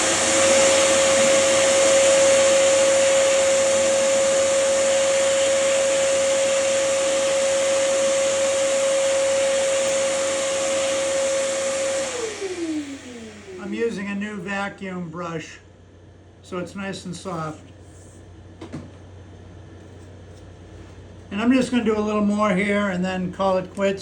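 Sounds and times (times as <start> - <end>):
vacuum cleaner motor whine: 0.0 - 14.7.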